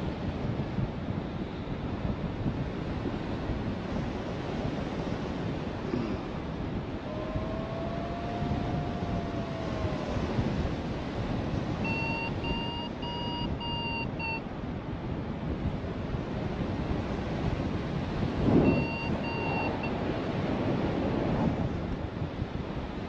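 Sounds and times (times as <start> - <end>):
wind buffeting microphone: 0.0 - 23.0
variometer beeping: 11.7 - 14.5, 18.6 - 20.0.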